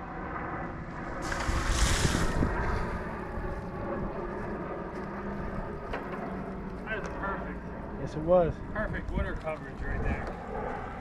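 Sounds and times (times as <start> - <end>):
water splash hissing on log: 1.2 - 2.4.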